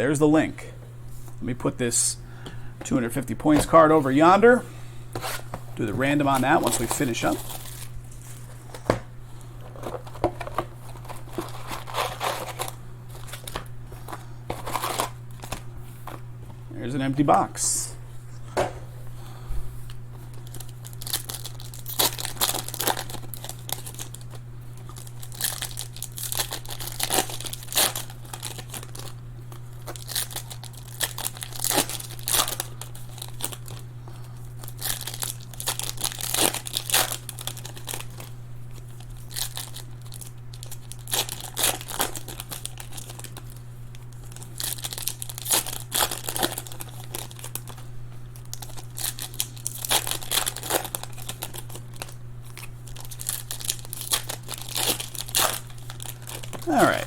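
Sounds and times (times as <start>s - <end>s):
low electrical hum: 0.0s - 57.0s
plastic wrapping crinkling: 6.0s - 8.9s, 9.7s - 16.2s, 20.3s - 29.2s, 29.8s - 57.0s.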